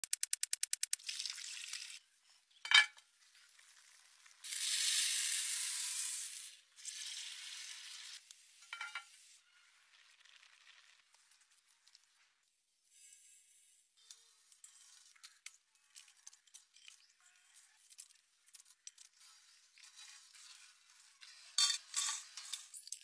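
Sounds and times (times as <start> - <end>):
quick ticks: 0.0 - 1.0
chicken sizzling in hot oil: 3.1 - 11.0.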